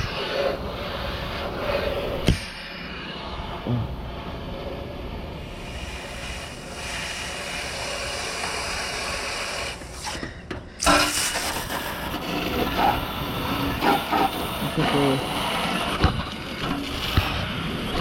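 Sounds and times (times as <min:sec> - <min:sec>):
hose water spraying on metal fins: 0:05.5 - 0:10.2, 0:10.8 - 0:18.0.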